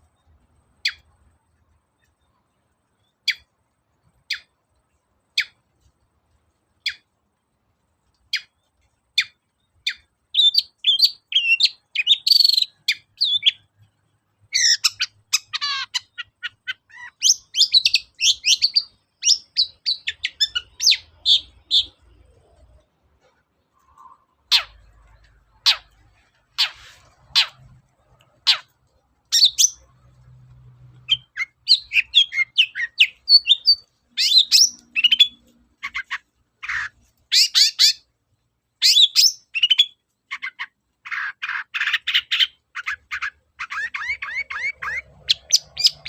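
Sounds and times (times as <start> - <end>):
shrike calling and chattering: 14.5 - 22.6, 23.8 - 30.2, 30.9 - 38.0, 38.8 - 46.0.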